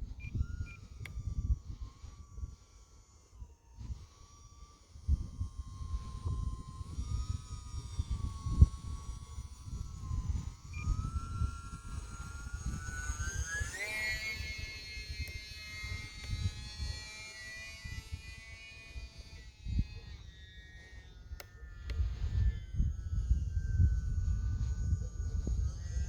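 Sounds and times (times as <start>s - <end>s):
model plane motor whining: 0.0s - 26.0s.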